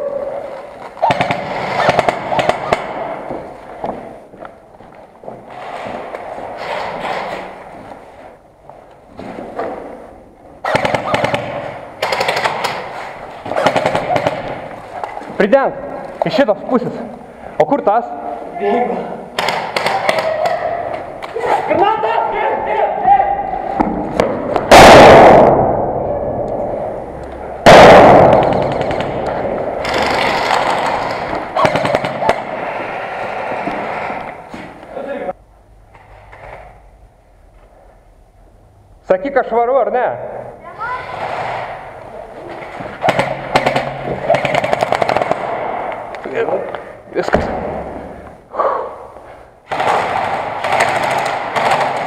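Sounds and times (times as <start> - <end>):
airsoft guns firing bursts: 1.0 - 3.2, 10.6 - 14.7, 19.4 - 20.6, 27.7 - 32.6, 43.0 - 45.8, 49.6 - 52.0
airsoft grenade blasts: 23.9 - 25.9, 27.6 - 32.6.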